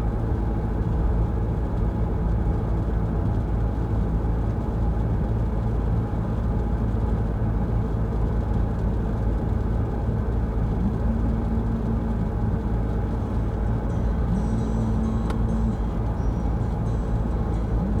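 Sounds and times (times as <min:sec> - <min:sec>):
car cabin road rumble: 0:07.1 - 0:18.0.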